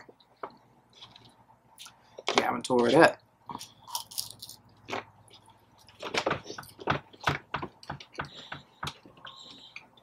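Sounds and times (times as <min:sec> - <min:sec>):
crunchy chewing: 0:03.5 - 0:07.3.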